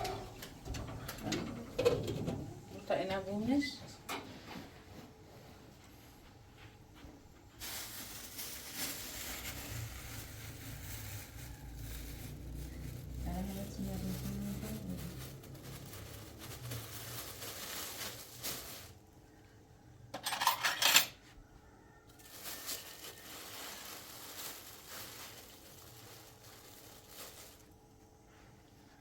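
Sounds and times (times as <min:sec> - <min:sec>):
faint rustling: 0:22.1 - 0:29.0.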